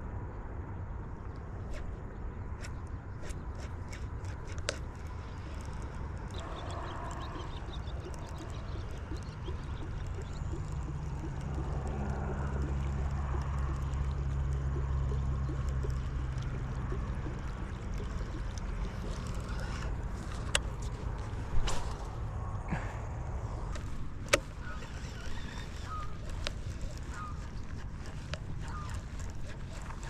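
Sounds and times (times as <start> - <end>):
low motor hum: 0.0 - 30.0
faint water gurgling: 1.0 - 30.0
sharp clicks: 2.6 - 22.1, 23.7 - 30.0.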